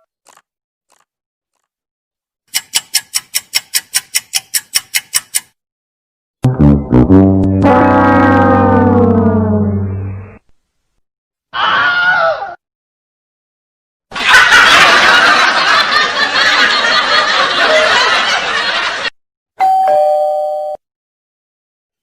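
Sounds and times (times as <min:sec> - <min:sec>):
loud noisy sound: 0:06.4 - 0:10.4
two-note doorbell chime: 0:19.6 - 0:20.8.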